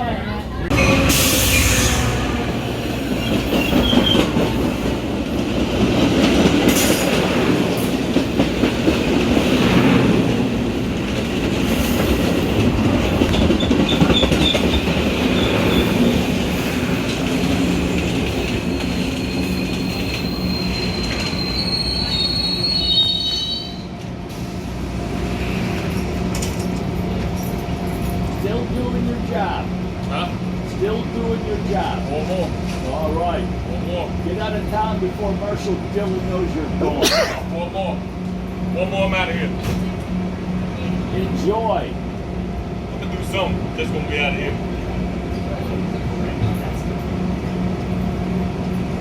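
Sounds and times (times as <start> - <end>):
train rolling on rails: 0.0 - 49.0
high wheel squeal: 0.7 - 4.4, 13.6 - 16.1, 18.5 - 23.9.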